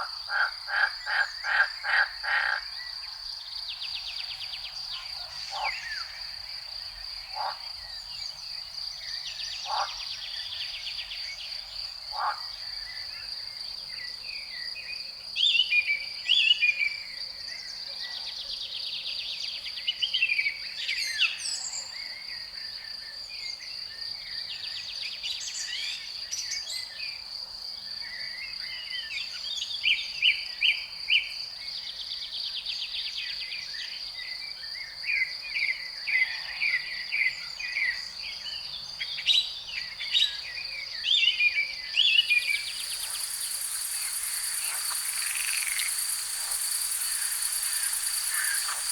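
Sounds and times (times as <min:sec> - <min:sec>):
songbird singing: 0:41.0 - 0:48.9
crickets trilling: 0:41.8 - 0:48.9
hissing insect sound: 0:41.8 - 0:48.9.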